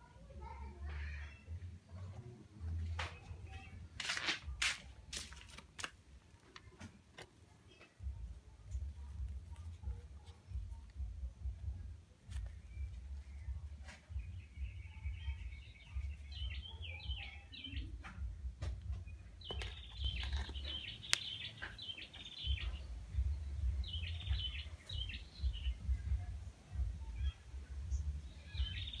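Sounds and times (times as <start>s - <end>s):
small birds chirping: 6.4s - 29.0s.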